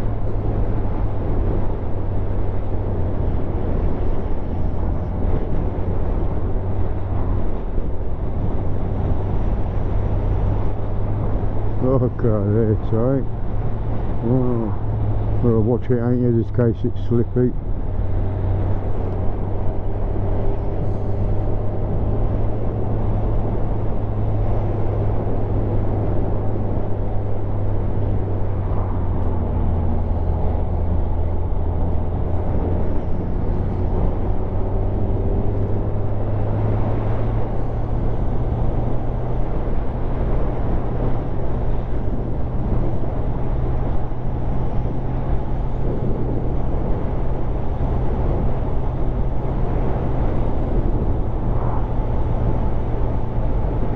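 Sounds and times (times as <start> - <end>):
wind rush: 17.1 - 53.9.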